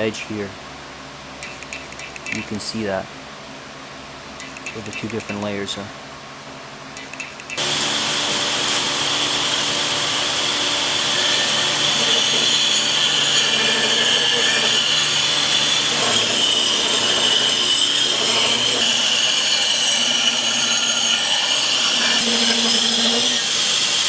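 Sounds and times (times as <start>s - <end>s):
power grinder grinding steel: 7.6s - 24.0s.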